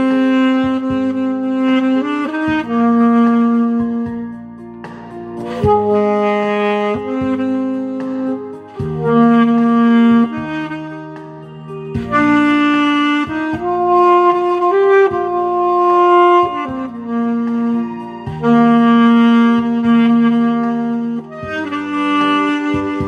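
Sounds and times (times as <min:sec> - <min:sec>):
backing track: 0:00.0 - 0:23.0
saxophone melody: 0:00.0 - 0:23.0.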